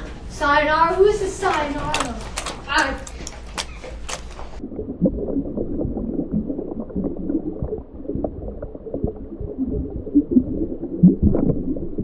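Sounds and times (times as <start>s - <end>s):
muffled bubbling water: 4.5s - 12.0s.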